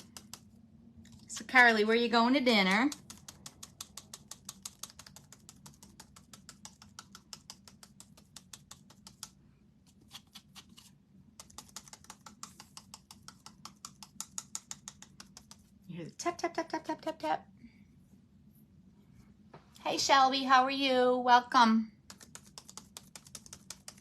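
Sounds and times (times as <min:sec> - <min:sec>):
sponge tapping paint onto wood: 0:11.4 - 0:15.7.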